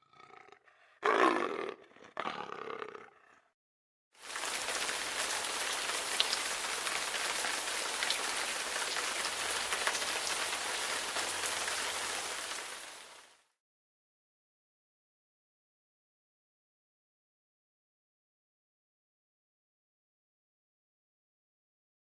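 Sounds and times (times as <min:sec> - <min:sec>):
rain hissing: 0:04.2 - 0:13.4.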